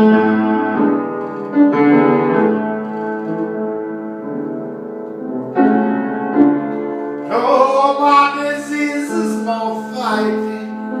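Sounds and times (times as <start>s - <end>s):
piano playing held chords: 0.0s - 11.0s.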